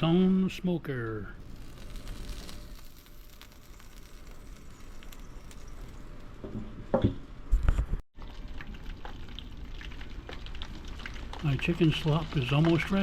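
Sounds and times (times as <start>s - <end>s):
food sizzling on griddle: 1.4s - 6.3s, 9.1s - 13.0s.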